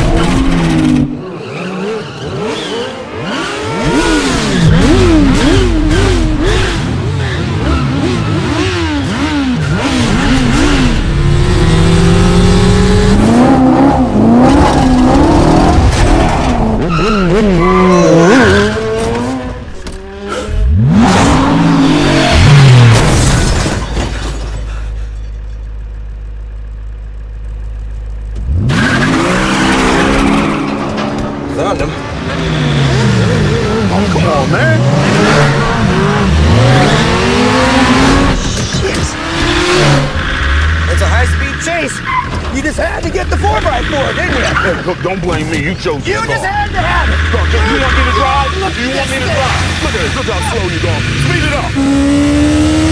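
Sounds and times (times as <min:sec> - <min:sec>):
car engines revving: 0:00.0 - 0:52.9
tyres squealing: 0:16.3 - 0:19.2, 0:40.1 - 0:51.2.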